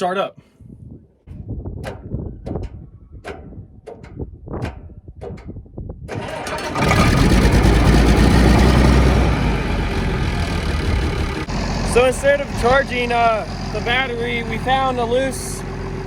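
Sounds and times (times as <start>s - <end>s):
sharp clicks and knocks: 1.8s - 5.6s
tractor diesel engine running: 6.1s - 16.0s.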